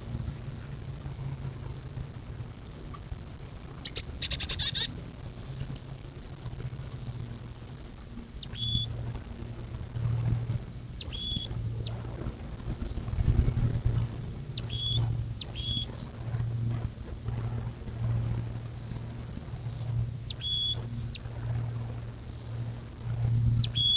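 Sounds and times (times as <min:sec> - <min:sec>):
steady low hum: 0:00.0 - 0:23.9
songbirds chattering: 0:03.8 - 0:05.7, 0:07.5 - 0:09.0, 0:10.6 - 0:12.1, 0:12.7 - 0:21.3, 0:22.1 - 0:23.9
whistled bird notes sweeping down: 0:08.1 - 0:08.9, 0:10.7 - 0:11.9, 0:14.2 - 0:15.9, 0:20.0 - 0:21.2, 0:23.3 - 0:23.9.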